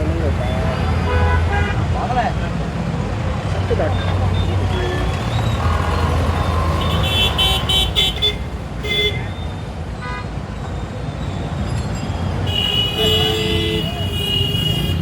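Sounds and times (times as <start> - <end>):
scooter engine and wind rumble: 2.7 - 9.9
vehicle horn toots: 4.5 - 9.3, 12.5 - 15.0.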